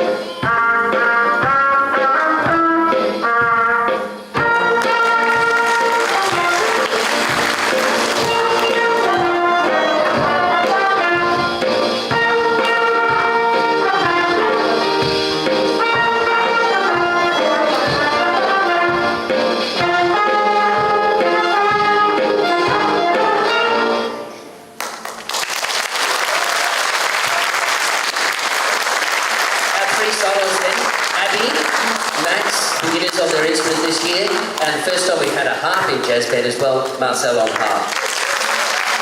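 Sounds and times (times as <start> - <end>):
drums steady beat: 0.0 - 23.1
brass horns sustained chords: 4.4 - 24.3.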